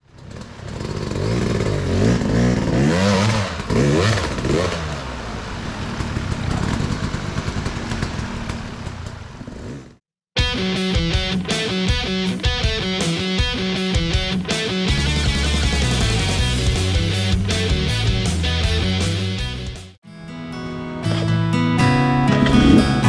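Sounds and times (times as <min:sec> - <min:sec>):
off-road motorcycle engine revving: 0:00.0 - 0:10.0.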